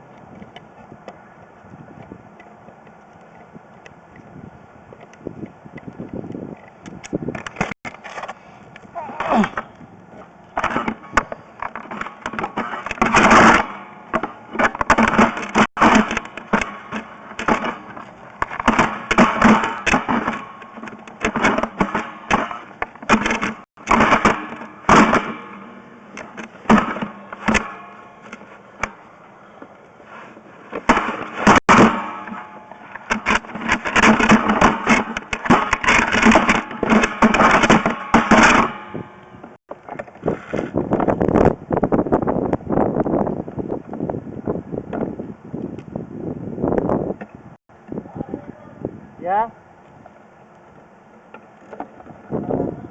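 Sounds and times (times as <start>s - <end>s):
camera clattering and scraping in pipe: 6.5s - 8.4s, 10.6s - 29.1s, 30.0s - 41.2s.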